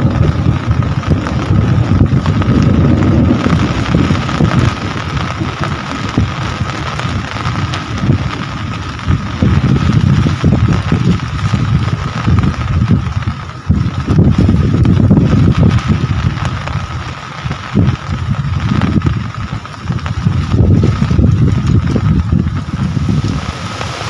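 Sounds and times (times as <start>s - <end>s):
low rumble: 0.0s - 24.0s
rain falling: 0.0s - 24.0s.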